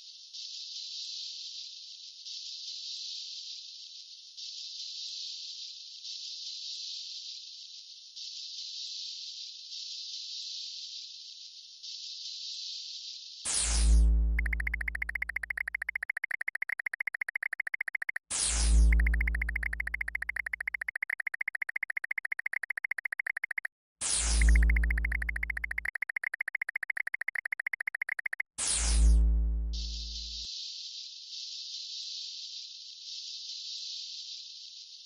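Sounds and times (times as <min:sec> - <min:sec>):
fast pulsing electronic buzz: 0:14.2 - 0:30.4
electronic zap with deep boom: 0:18.3 - 0:20.8, 0:24.0 - 0:25.8, 0:28.6 - 0:30.4.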